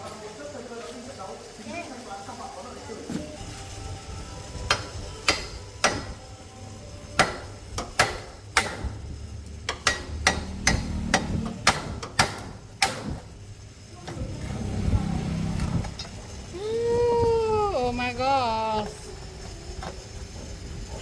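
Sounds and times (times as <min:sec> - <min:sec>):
hammer striking metal: 0:04.7 - 0:06.2, 0:07.2 - 0:09.0, 0:09.7 - 0:13.2.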